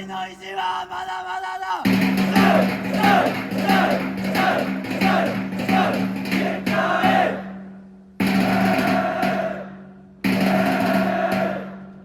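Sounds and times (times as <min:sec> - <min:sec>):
group chanting and shouting: 0:00.0 - 0:07.5, 0:08.4 - 0:11.8
backing music: 0:01.9 - 0:07.4.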